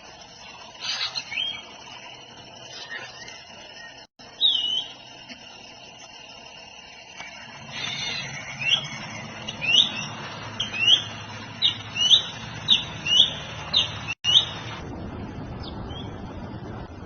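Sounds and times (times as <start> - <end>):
low background hum: 0.0 - 17.0
bird calling with rising notes: 0.4 - 5.1, 7.1 - 14.8.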